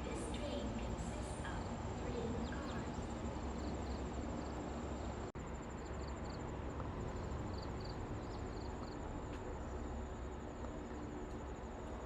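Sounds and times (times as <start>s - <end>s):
insects chirping: 0.0s - 12.0s
steady low rumble: 0.0s - 12.0s.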